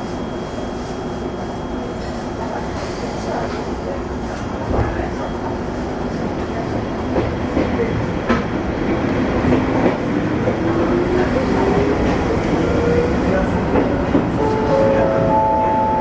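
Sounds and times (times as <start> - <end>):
train running with steady rumble: 0.0 - 16.0.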